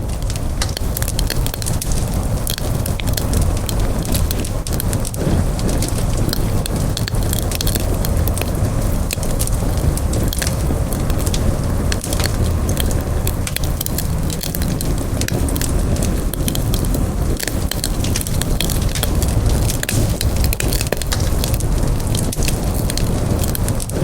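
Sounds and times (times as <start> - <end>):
burning wood crackling and popping: 0.0 - 24.0
campfire flame rushing: 0.0 - 24.0.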